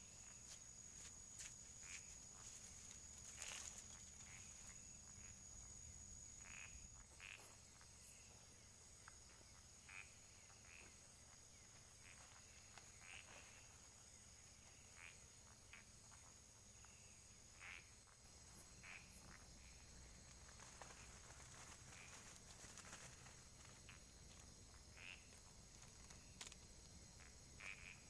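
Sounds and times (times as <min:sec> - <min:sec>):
high-pitched insect drone: 0:00.0 - 0:08.5
frogs croaking: 0:00.0 - 0:28.0.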